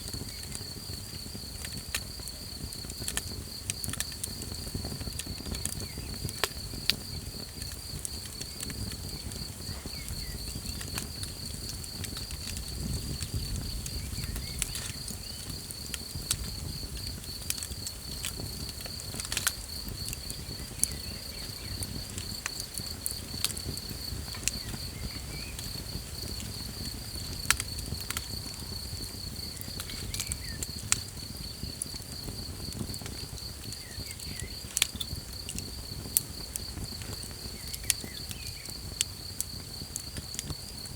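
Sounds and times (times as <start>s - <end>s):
campfire crackling and popping: 0.0s - 40.9s
night insects trilling: 0.0s - 40.9s.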